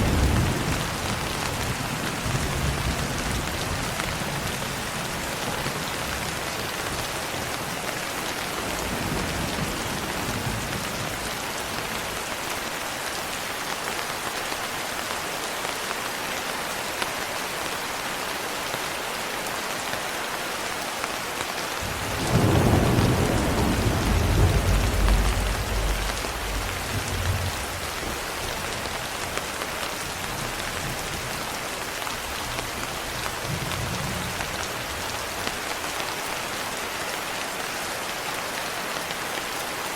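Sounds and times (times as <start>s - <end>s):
steady rain: 0.0s - 39.9s
thunder rumbling: 21.8s - 28.9s.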